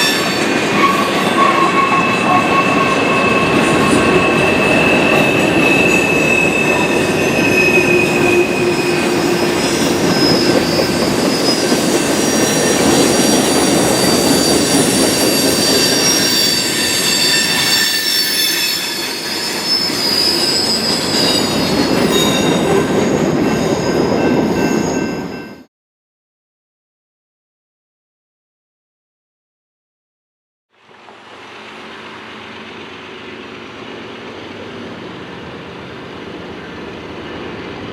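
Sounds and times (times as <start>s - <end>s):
train cars rumbling and rattling: 0.0s - 25.7s, 31.0s - 37.9s
train wheels squealing: 0.0s - 25.7s, 35.2s - 37.9s.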